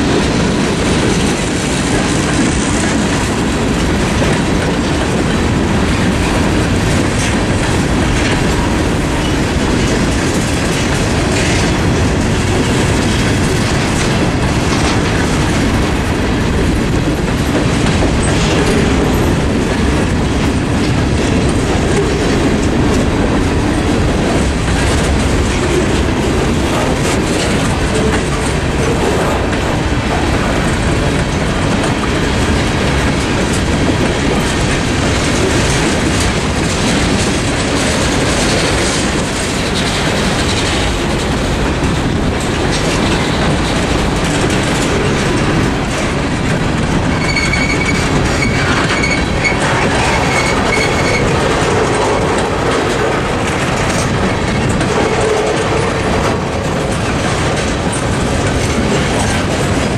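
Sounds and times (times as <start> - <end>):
freight train wheels rumbling: 0.0 - 59.9
high wheel squeal: 47.1 - 51.4.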